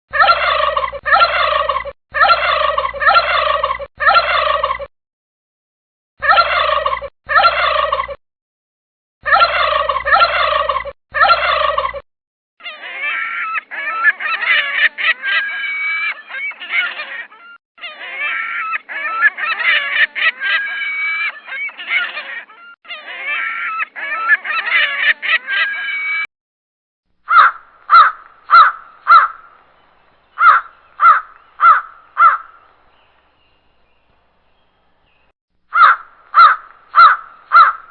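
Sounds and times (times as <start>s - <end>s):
bird calls: 0.1s - 4.9s, 27.2s - 37.9s
wild turkey gobbling: 0.1s - 4.9s, 6.2s - 8.2s, 9.3s - 12.0s, 27.3s - 29.6s, 30.3s - 33.2s, 35.8s - 37.9s
harsh raven calls: 27.2s - 29.6s, 30.3s - 32.7s, 35.7s - 37.9s.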